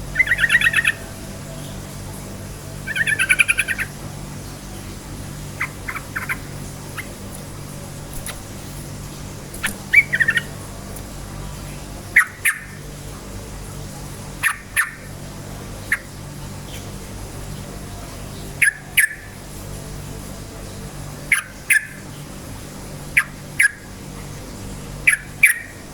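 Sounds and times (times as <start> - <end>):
bird chirping: 0.0 - 7.4, 9.6 - 10.6, 11.5 - 12.9, 14.4 - 15.2, 15.8 - 17.0, 17.9 - 19.4, 21.3 - 22.2, 23.1 - 23.9, 25.0 - 25.8
steady low hum: 0.0 - 25.9.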